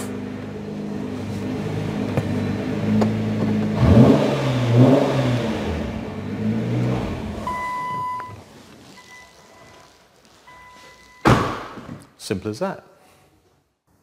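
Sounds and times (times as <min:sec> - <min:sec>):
car engine running and revving: 0:00.0 - 0:07.8.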